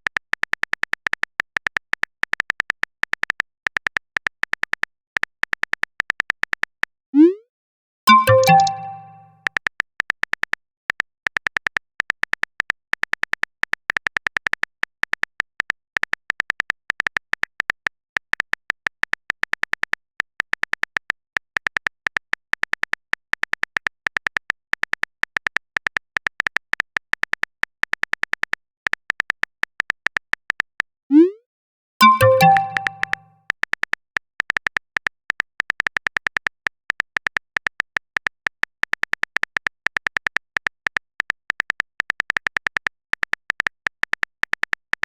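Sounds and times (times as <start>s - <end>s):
phone keyboard typing clicks: 8.1s - 9.3s, 32.0s - 33.2s.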